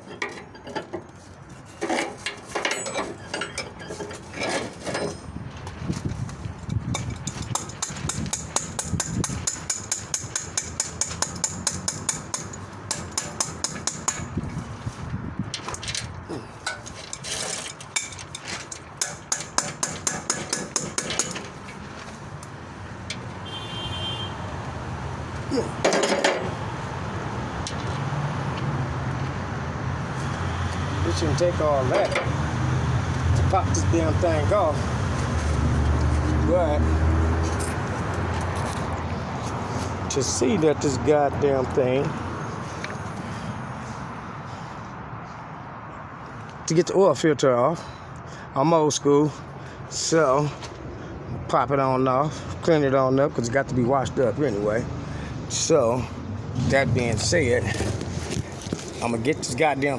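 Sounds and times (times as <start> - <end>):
metallic clicking and tapping: 6.9 - 14.3.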